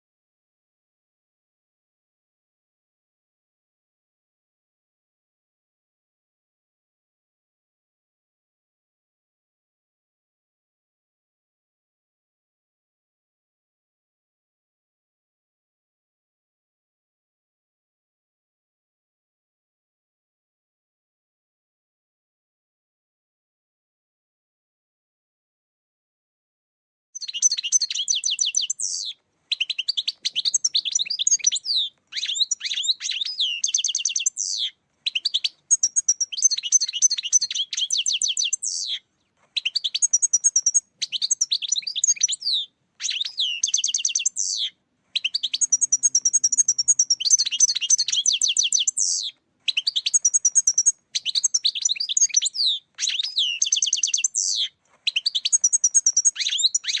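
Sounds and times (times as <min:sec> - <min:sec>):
goldfinch twittering song: 0:27.2 - 0:57.0.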